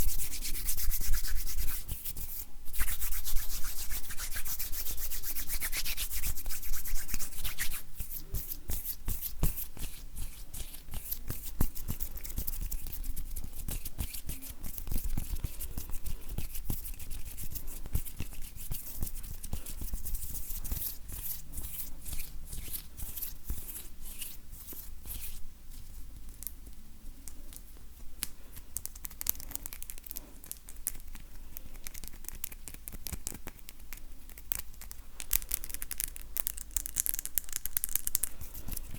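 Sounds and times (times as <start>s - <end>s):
dry hands rubbing together: 0.0s - 25.9s.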